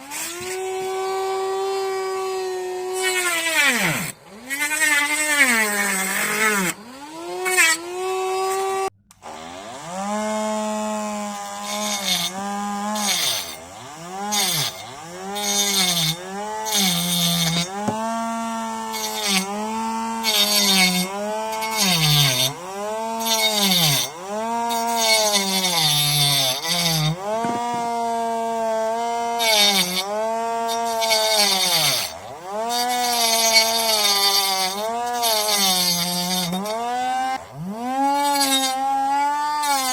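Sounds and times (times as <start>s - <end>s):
grinder motor whine: 0.0s - 39.9s
harsh grinding noise: 8.4s - 39.9s.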